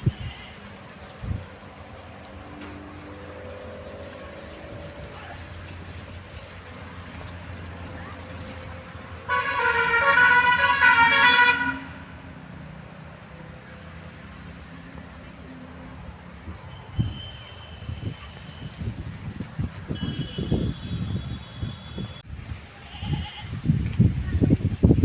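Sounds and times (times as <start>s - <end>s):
vehicle horn blast: 9.2s - 12.2s, 16.8s - 18.9s, 19.9s - 22.2s.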